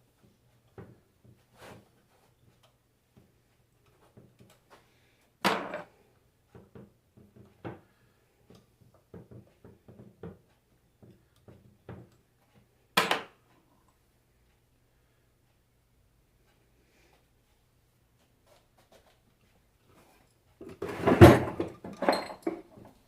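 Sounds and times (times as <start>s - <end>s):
tools clicking and tapping: 2.3s - 4.8s, 5.4s - 7.9s, 8.5s - 14.0s.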